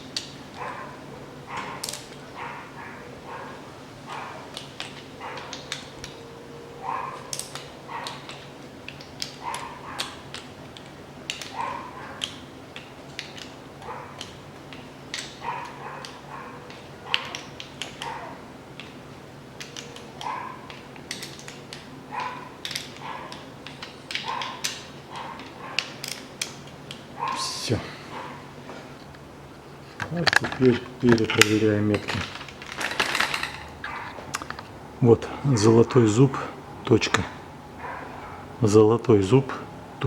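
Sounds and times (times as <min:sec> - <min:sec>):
dog yipping and whining: 0:00.5 - 0:08.4, 0:09.3 - 0:10.3, 0:11.5 - 0:12.3, 0:13.8 - 0:14.2, 0:15.4 - 0:18.5, 0:19.8 - 0:20.8, 0:22.1 - 0:23.5, 0:24.2 - 0:26.0, 0:33.2 - 0:34.8, 0:37.8 - 0:38.5
metallic clicks of bolts tightened: 0:29.9 - 0:34.7.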